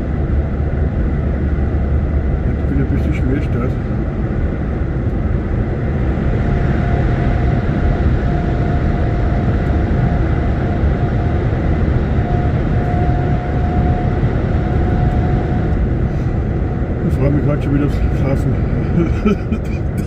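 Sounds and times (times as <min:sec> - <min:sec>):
faint steady whine: 0:00.0 - 0:20.0
lorry engine and road noise: 0:00.0 - 0:20.0.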